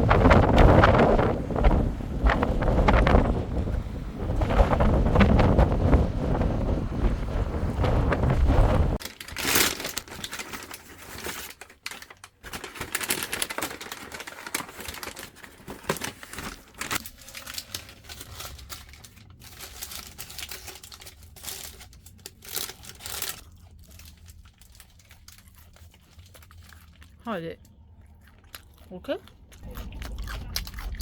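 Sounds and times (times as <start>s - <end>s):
wind buffeting microphone: 0.0s - 9.0s
paper wrapping crinkling and tearing: 9.0s - 27.2s.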